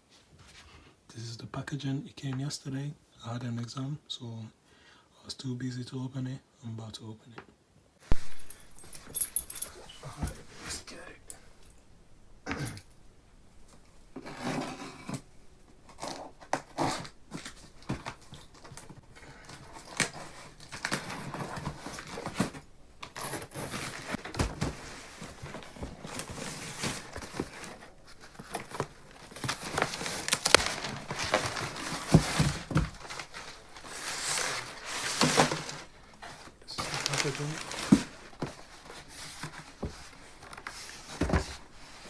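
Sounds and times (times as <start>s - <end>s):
cardboard and plastic tearing: 14.2s - 41.6s.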